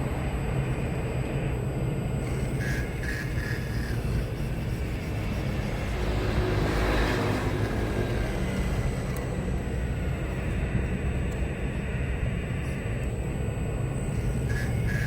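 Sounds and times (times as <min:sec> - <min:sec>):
toy excavator motor drone: 0:02.1 - 0:11.4, 0:13.8 - 0:15.0.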